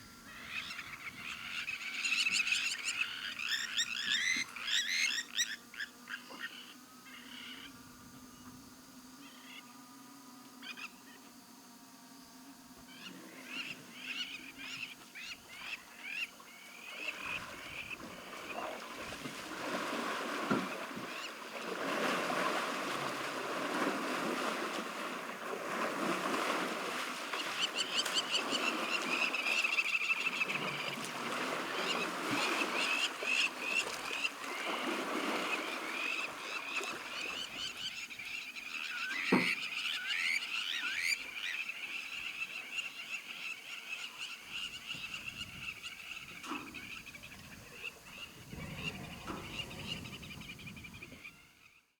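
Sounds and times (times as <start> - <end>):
chorus of lower animal calls: 13.4 - 37.9.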